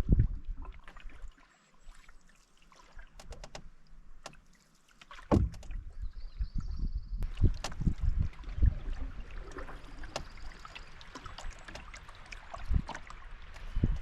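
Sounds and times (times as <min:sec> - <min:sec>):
paddle clicks and drips: 0:00.6 - 0:06.0, 0:07.2 - 0:14.0
paddle knocking against hull: 0:05.0 - 0:05.9, 0:07.3 - 0:08.6, 0:09.4 - 0:14.0
heavy low thump: 0:05.3 - 0:05.7.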